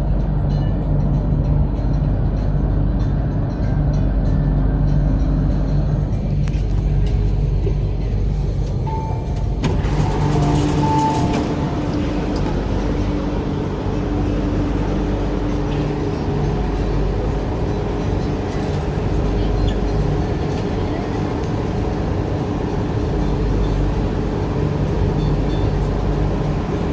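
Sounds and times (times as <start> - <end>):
equipment whine: 0.0 - 26.9
train low hum: 0.0 - 26.9.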